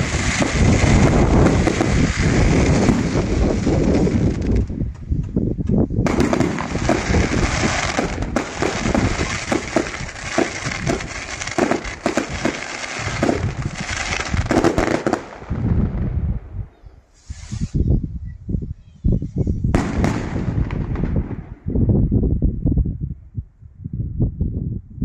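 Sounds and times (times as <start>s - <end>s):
fireworks crackle: 0.0s - 5.4s, 6.0s - 15.9s, 17.2s - 17.8s, 19.8s - 21.5s
fireworks bangs: 0.0s - 16.4s, 19.7s - 21.8s.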